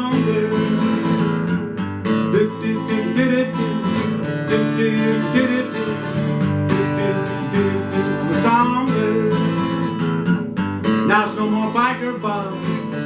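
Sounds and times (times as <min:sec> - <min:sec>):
person singing: 0:00.0 - 0:01.2, 0:02.2 - 0:10.0, 0:11.0 - 0:13.0
strummed acoustic guitar: 0:00.0 - 0:13.0.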